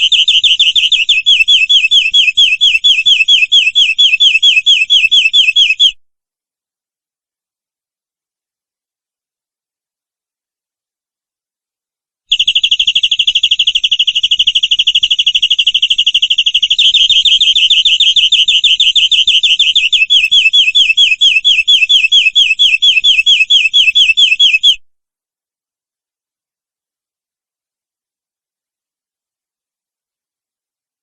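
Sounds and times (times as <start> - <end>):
canary singing trill: 0.0 - 6.0, 12.3 - 24.8.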